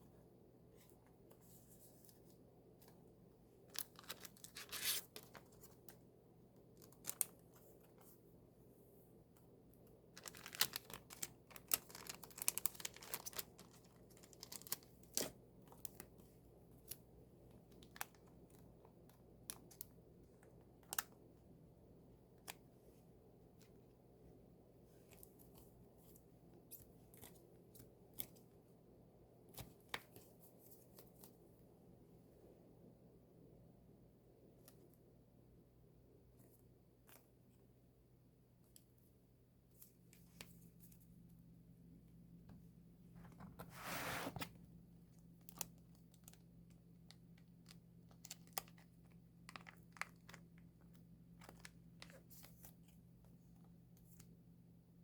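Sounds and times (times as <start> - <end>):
packaging clicks and crinkles: 3.7 - 6.0, 10.1 - 16.2, 45.2 - 53.0
packaging tearing rustle: 10.2 - 15.3.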